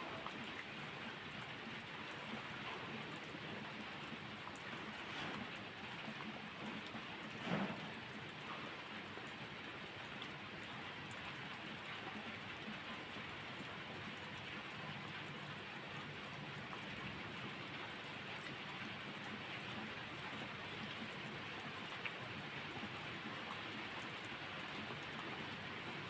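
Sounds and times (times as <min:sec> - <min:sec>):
brief loud pop: 0:07.4 - 0:07.9.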